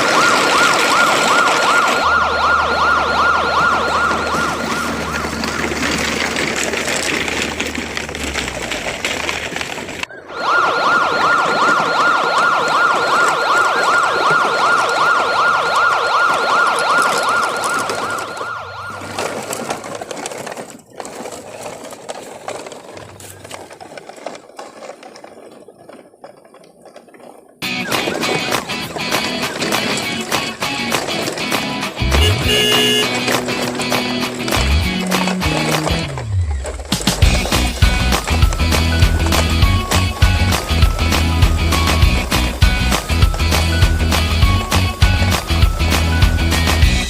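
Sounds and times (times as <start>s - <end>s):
electronic police siren warbling: 0.0s - 5.7s, 10.1s - 19.4s.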